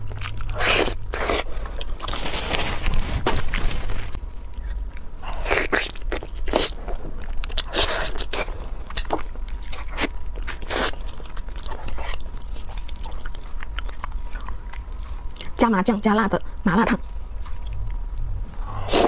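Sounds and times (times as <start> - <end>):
close-miked chewing: 0.0 - 2.2, 4.4 - 15.7.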